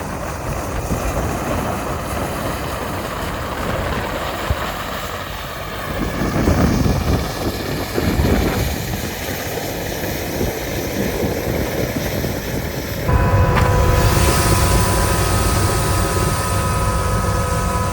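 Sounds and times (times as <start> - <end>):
helicopter rotor and turbine rumble: 13.0 - 17.9
turbine whine: 13.0 - 17.9.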